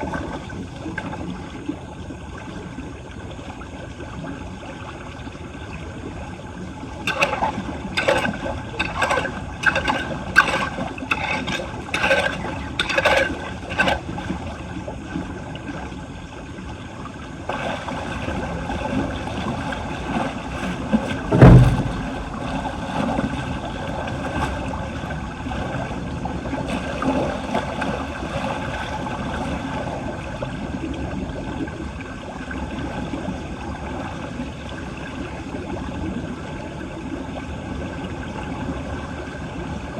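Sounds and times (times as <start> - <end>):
water running into a drain: 5.4 - 15.7, 17.4 - 31.6
heavy low thump: 21.3 - 22.5.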